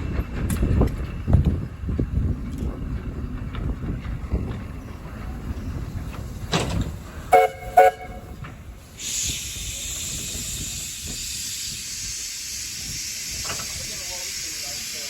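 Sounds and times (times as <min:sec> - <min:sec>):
steam hissing: 0:05.8 - 0:15.0
steam locomotive whistle toots: 0:07.3 - 0:08.4.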